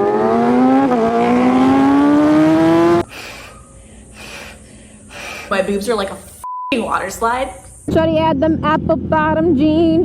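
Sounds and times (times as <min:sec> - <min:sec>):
motorcycle engine accelerating: 0:00.0 - 0:03.1.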